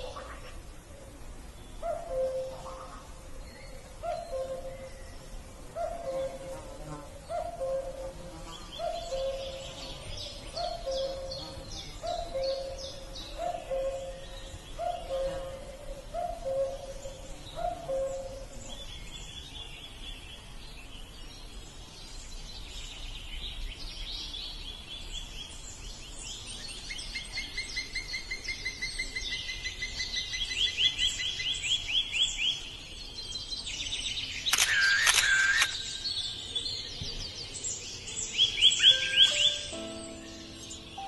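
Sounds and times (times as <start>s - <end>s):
songbirds singing: 0.0s - 41.0s
harsh bird sounds: 34.2s - 41.0s.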